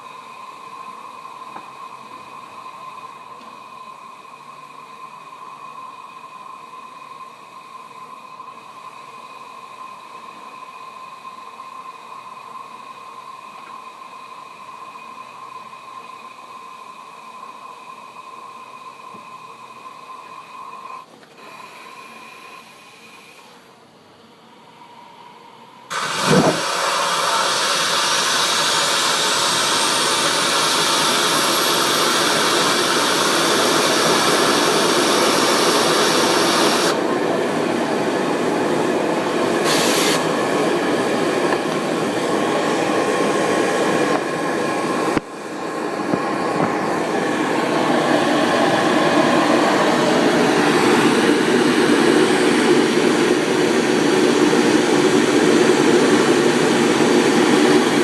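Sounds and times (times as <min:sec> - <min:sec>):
turbo high whine: 0:00.0 - 0:58.0
jet engine roaring: 0:25.9 - 0:58.0.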